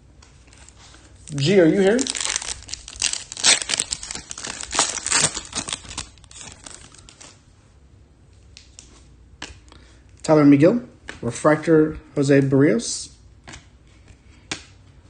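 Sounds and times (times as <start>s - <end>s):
foil wrapper crinkling and tearing: 0.5s - 7.4s.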